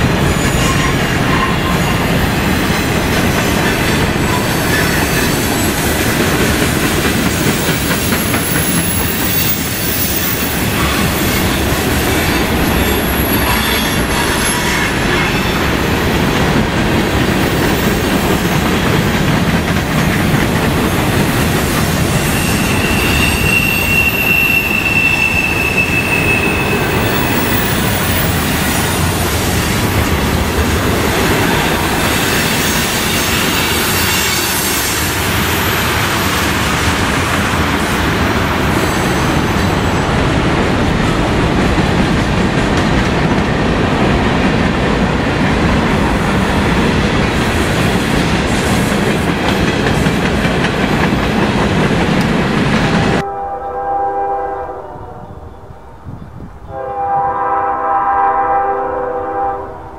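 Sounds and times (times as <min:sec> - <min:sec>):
train air horn: 0:13.4 - 0:15.6, 0:53.2 - 0:55.7, 0:56.7 - 0:59.9
wheel squeal: 0:22.2 - 0:28.4.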